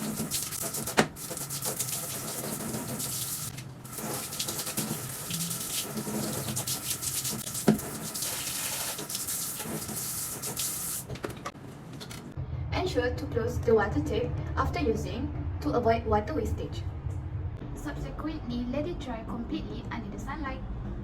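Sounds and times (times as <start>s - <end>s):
tap water running in sink: 0.0s - 11.4s.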